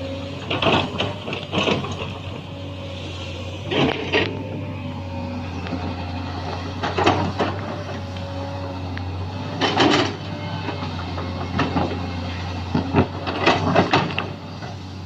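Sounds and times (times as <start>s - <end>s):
excavator diesel engine running: 0.0s - 15.0s
soil loading clattering knocks: 0.2s - 2.5s, 5.6s - 8.2s, 9.4s - 14.8s.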